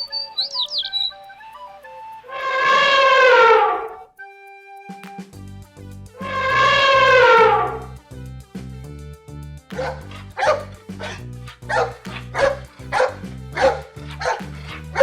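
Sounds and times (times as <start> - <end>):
background music with low notes: 0.0 - 15.0
dog barking: 9.7 - 15.0.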